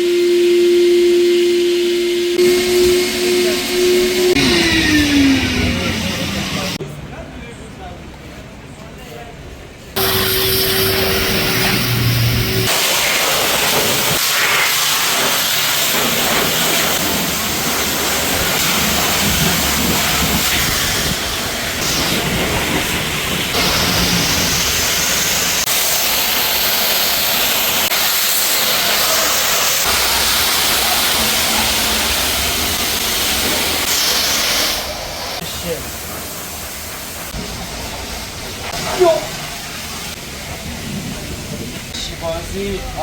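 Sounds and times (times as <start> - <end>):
pressure washer spraying water: 0.0 - 6.8, 10.0 - 42.5.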